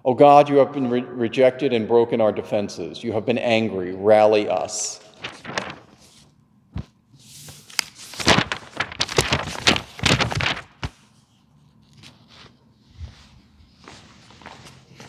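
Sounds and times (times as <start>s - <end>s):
rustling and clatter: 5.2s - 6.9s, 7.5s - 11.0s.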